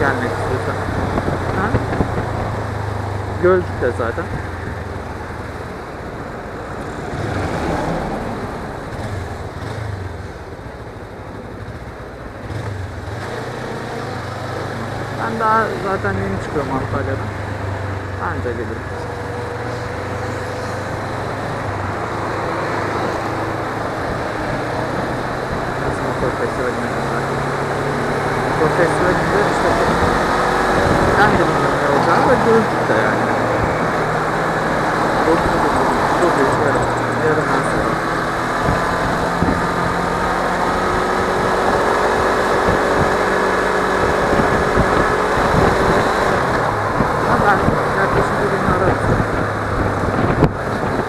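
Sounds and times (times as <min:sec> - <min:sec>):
motorcycle engine running: 0:00.0 - 0:51.0
wind and road noise: 0:00.0 - 0:51.0.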